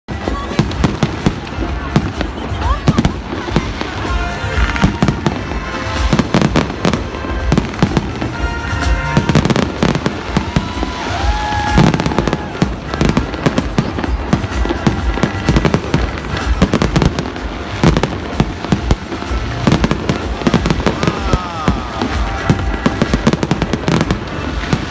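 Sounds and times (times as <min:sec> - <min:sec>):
fireworks bangs and crackles: 0:00.1 - 0:24.9.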